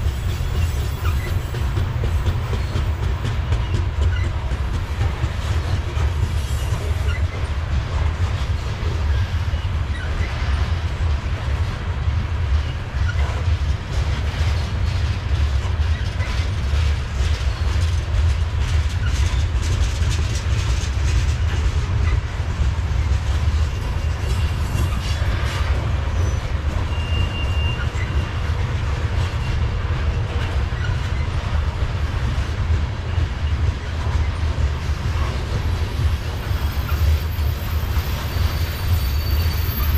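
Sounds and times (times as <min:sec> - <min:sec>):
freight train rumbling past: 0:00.0 - 0:39.9
wheels clacking over rail joints: 0:00.0 - 0:39.9
thin wheel squeal: 0:26.2 - 0:28.2, 0:36.6 - 0:39.9.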